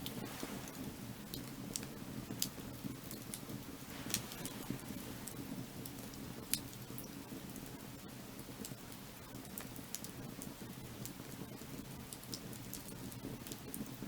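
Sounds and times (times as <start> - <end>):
firewood crackling and popping: 0.0 - 14.0
low rumble of fire: 0.0 - 14.0.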